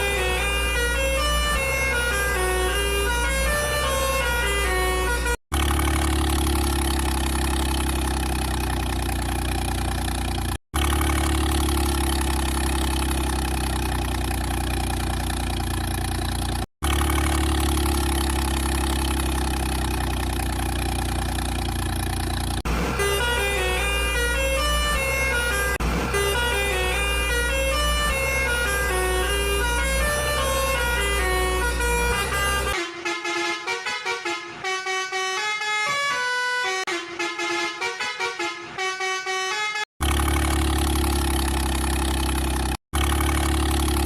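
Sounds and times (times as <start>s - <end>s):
simple note-by-note melody: 0.0s - 5.4s, 23.0s - 32.8s
vehicle engine rumble: 0.0s - 36.1s, 40.0s - 44.0s.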